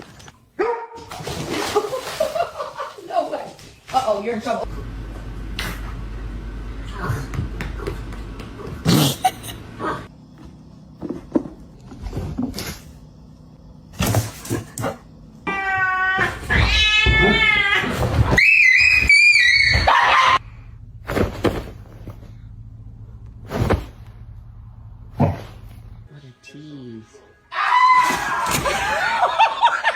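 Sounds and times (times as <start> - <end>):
cat yowling: 15.4 - 20.4.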